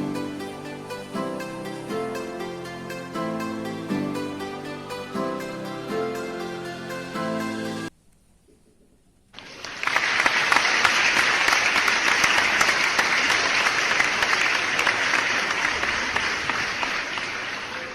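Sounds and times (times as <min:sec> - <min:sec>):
crowd clapping: 0:09.4 - 0:17.9.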